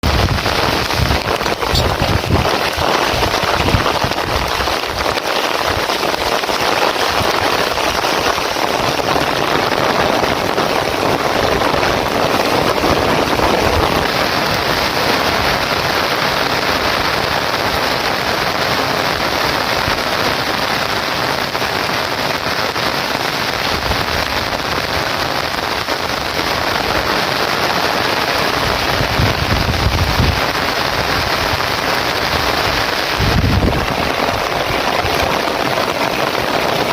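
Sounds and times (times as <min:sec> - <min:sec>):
low rumbling: 0:00.0 - 0:04.4
heavy rain falling: 0:00.0 - 0:36.9.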